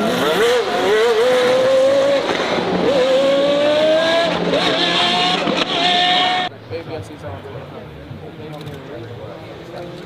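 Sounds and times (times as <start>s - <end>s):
race car engine accelerating: 0.0s - 6.5s.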